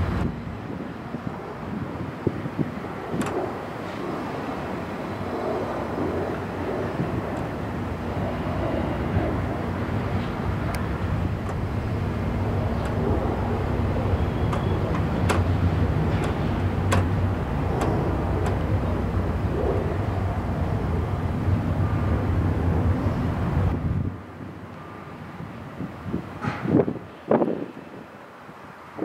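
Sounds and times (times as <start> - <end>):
diesel locomotive hum: 0.0 - 29.0
train wheels rumbling on rail: 6.1 - 23.8, 26.2 - 27.2
metallic wheel clicks: 14.4 - 18.7.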